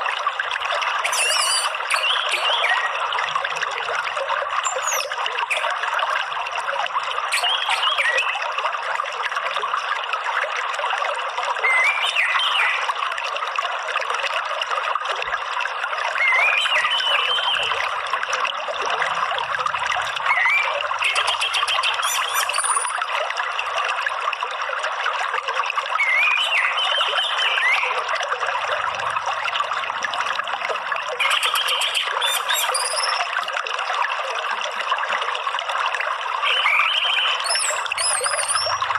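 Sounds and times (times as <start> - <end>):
trickling running water: 0.0 - 38.9
thrush birdsong: 1.1 - 3.0, 20.1 - 23.0, 31.2 - 33.3, 36.5 - 38.9.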